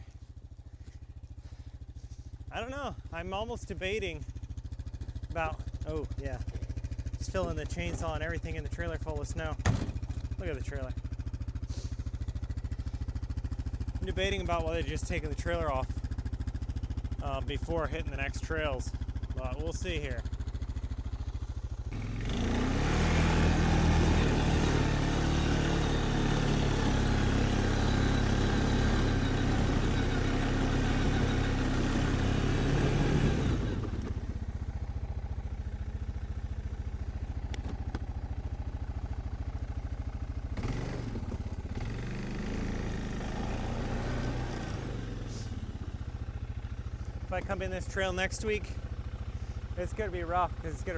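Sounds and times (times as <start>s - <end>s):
off-road vehicle engine revving: 5.0s - 20.3s, 21.9s - 34.2s, 40.6s - 45.7s, 46.4s - 50.9s
vehicle churning through snow: 11.6s - 12.1s, 21.9s - 34.1s, 40.6s - 45.7s.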